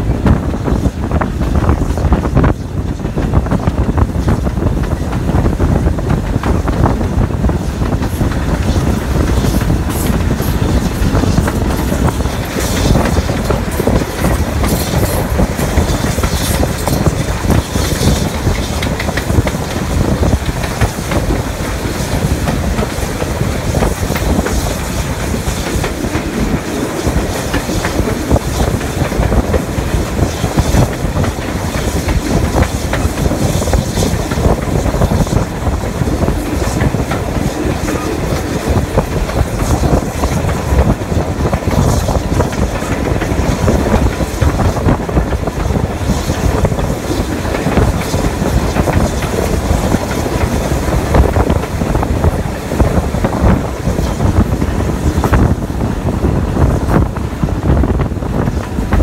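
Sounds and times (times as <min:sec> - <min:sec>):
train wheels clattering on track: 0:00.0 - 0:59.0
wind across microphone: 0:00.0 - 0:59.0.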